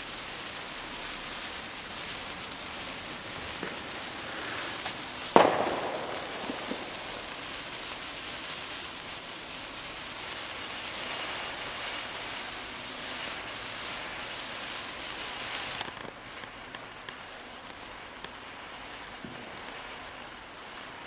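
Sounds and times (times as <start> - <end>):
sparklers fizzing: 0.0 - 21.0
sharp loud burst: 3.0 - 8.1.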